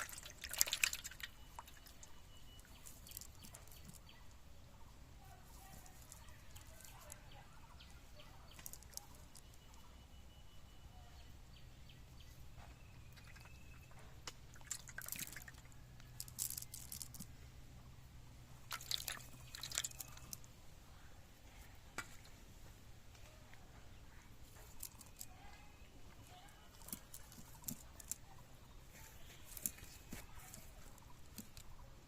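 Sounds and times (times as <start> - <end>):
water splashing and dripping: 0.0 - 2.2, 13.1 - 15.7, 18.7 - 20.3
faint low hum: 0.0 - 32.0.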